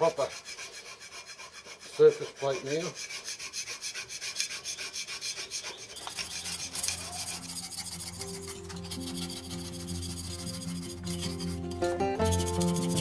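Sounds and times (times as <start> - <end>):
rasping on steel plate: 0.0 - 13.0
soft background music: 6.1 - 13.0.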